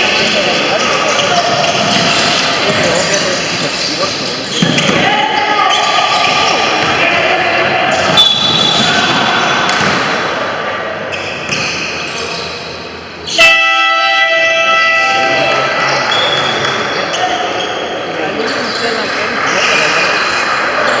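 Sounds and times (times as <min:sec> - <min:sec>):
basketball bouncing: 0:01.4 - 0:03.6, 0:04.5 - 0:05.0, 0:08.0 - 0:10.2
loud game horn: 0:13.3 - 0:15.8.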